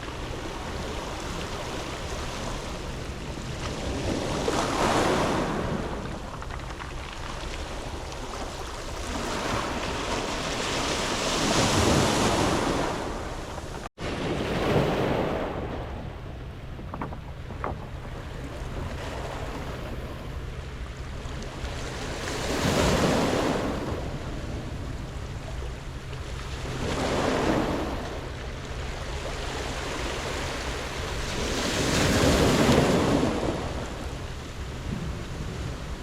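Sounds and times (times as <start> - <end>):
waves washing onto pebble beach: 0.0 - 15.6, 21.7 - 25.1, 26.5 - 28.1, 29.1 - 36.0.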